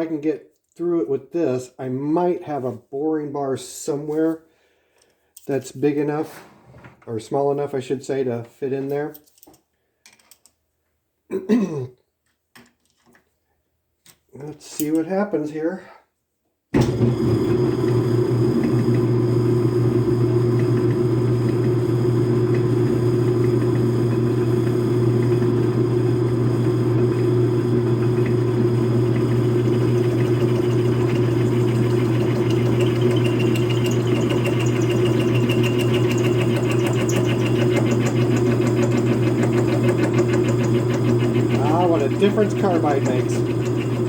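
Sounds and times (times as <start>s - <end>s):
metal lathe humming: 16.8s - 44.0s
drill cutting whine: 16.9s - 44.0s.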